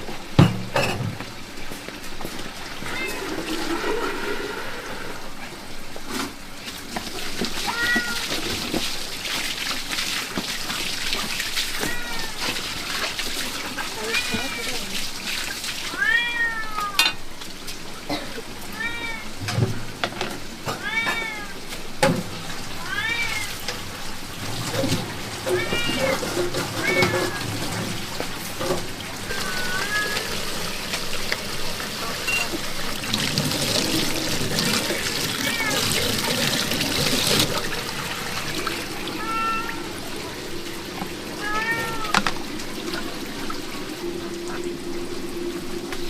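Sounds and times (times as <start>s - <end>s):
rain hissing: 1.1s - 46.0s
cat meowing: 2.8s - 4.0s, 7.6s - 8.4s, 11.7s - 13.0s, 15.9s - 17.0s, 18.7s - 19.4s, 20.7s - 21.6s, 22.8s - 23.7s, 25.4s - 27.5s, 29.3s - 30.5s, 35.3s - 36.2s, 39.1s - 40.0s, 41.4s - 42.3s
drips and patters: 5.4s - 46.0s.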